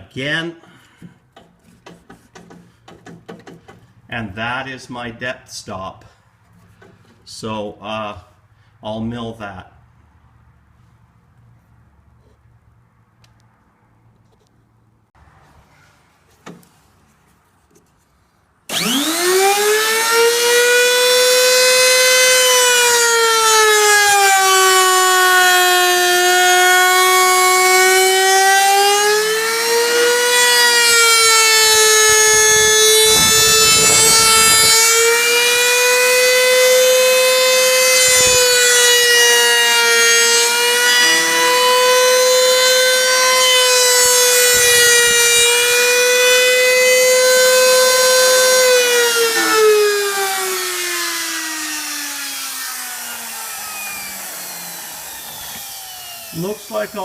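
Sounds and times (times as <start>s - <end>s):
milling cutter squealing: 40.5s - 43.9s.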